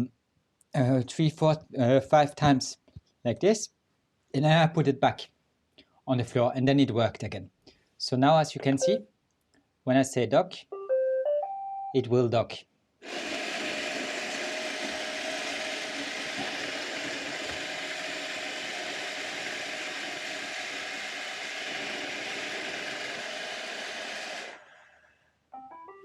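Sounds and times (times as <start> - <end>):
robot vacuum whirring: 13.0 - 25.1.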